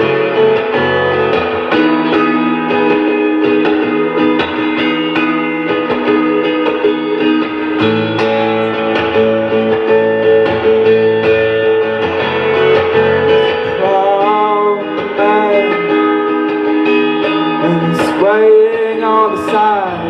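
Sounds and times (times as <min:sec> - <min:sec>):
acoustic guitar strumming: 0:00.0 - 0:20.0
person singing: 0:11.5 - 0:20.0.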